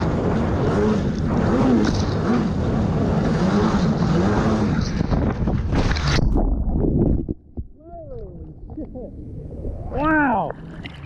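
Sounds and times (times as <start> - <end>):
jet ski engine running: 0.0 - 6.0.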